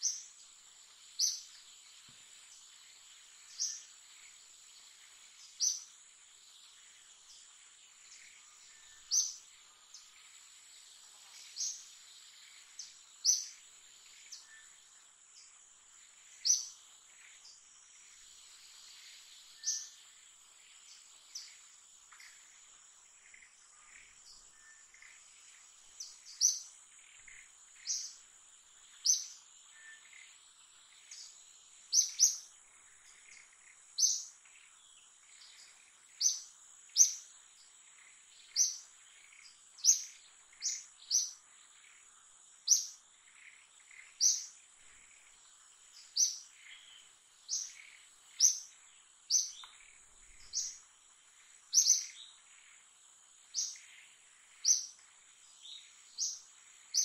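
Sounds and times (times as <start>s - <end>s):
fainter bird chirps: 51.7s - 52.7s.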